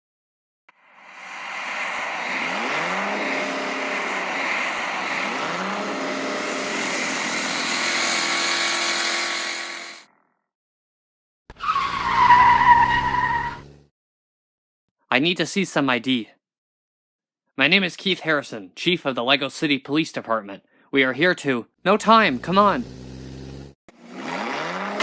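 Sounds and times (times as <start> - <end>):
car engine revving: 0.8 - 9.8, 22.3 - 25.0.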